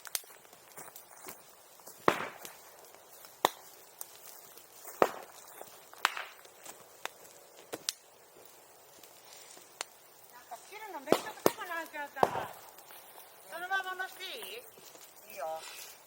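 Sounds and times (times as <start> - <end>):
bamboo bursting with loud pops: 0.0 - 8.1, 11.0 - 13.2
fire crackling: 0.0 - 16.0.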